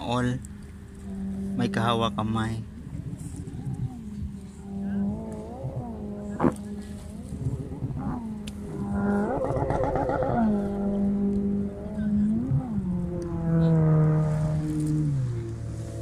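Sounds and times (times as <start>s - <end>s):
person singing long gliding notes: 3.5s - 14.6s.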